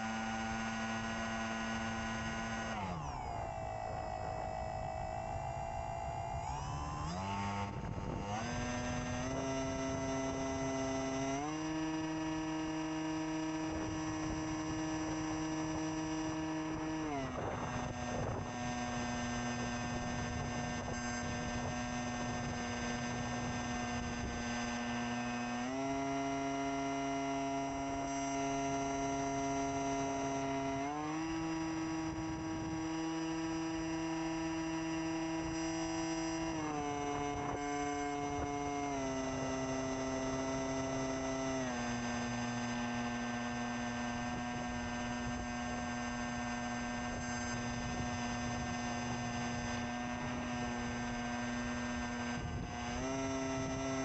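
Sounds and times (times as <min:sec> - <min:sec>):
model airplane motor whining: 0:00.0 - 0:54.0.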